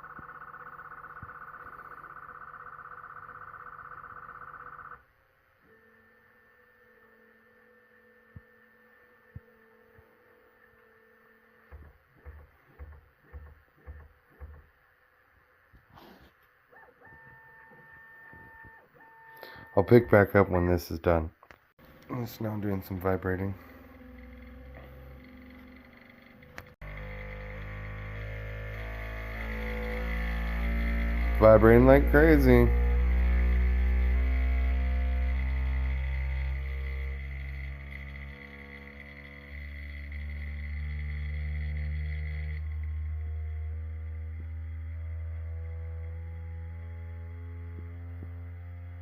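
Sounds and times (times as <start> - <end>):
low throbbing pulses: 0.0 - 5.1, 21.8 - 49.0
printer motor hum: 0.0 - 21.1, 21.8 - 49.0.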